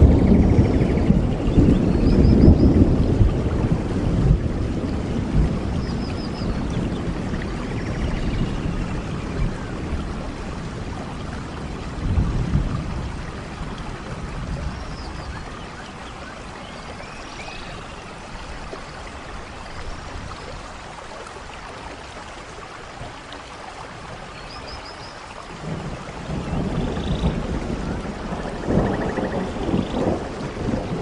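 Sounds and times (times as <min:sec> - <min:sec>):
low thunder rumble: 0:00.0 - 0:15.7, 0:25.6 - 0:31.0
steady rain falling: 0:00.0 - 0:31.0.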